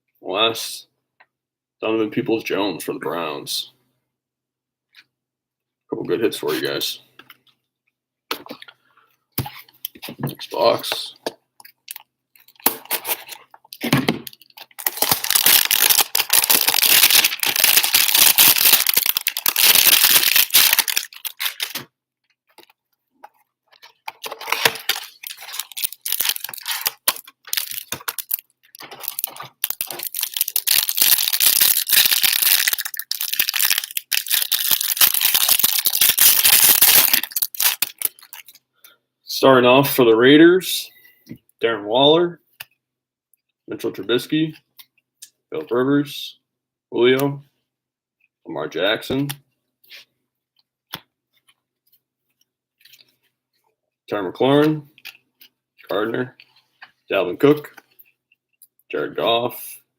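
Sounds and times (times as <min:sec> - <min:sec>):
packaging tearing and crinkling: 0:14.3 - 0:21.9, 0:23.8 - 0:38.6.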